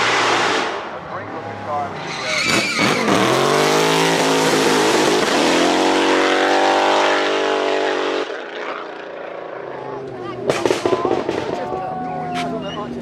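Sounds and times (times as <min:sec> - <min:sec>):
car engine at high revs: 0:00.0 - 0:11.7.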